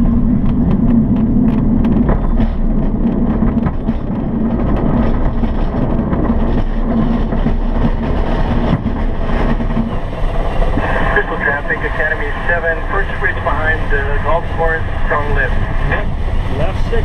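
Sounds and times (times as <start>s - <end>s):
plane engine droning: 0.0s - 17.0s
rushing air in cockpit: 4.0s - 17.0s.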